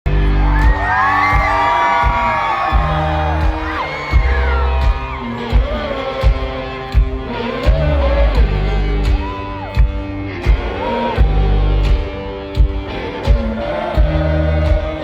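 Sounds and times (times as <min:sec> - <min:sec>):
crowd whooping and cheering: 0:00.1 - 0:11.9
heavy drum beat: 0:00.1 - 0:15.0
rock band playing: 0:00.1 - 0:15.0.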